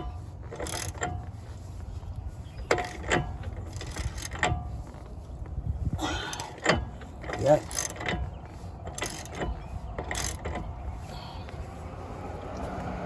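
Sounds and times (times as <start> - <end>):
wrench clinking on metal: 0.0 - 1.3, 6.2 - 10.6.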